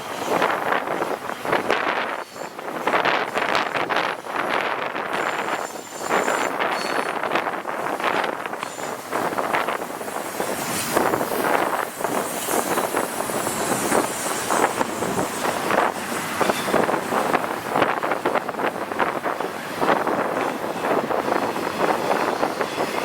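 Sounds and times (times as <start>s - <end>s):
freight train clattering on rails: 0.0s - 23.0s
wind buffeting microphone: 0.0s - 23.0s.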